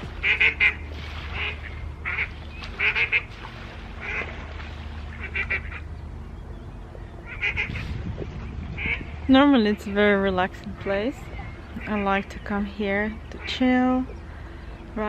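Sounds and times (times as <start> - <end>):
steady low hum: 0.0 - 15.0
ducks quacking: 0.2 - 3.3, 4.0 - 4.3, 5.1 - 5.9, 7.2 - 8.0, 8.7 - 9.2, 10.8 - 12.5.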